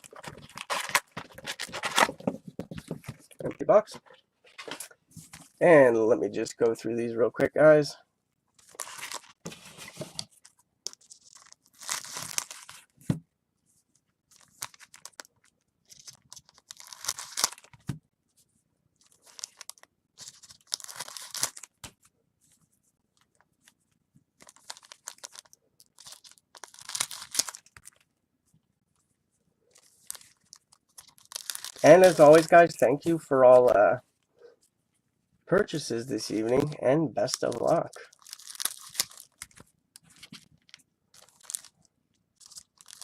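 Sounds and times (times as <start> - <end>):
foil wrappers tearing and crinkling: 0.0 - 2.1, 11.2 - 12.8, 15.9 - 17.7, 19.2 - 21.8, 24.4 - 28.0, 29.9 - 32.7, 36.6 - 39.6, 40.2 - 41.8, 42.4 - 43.0.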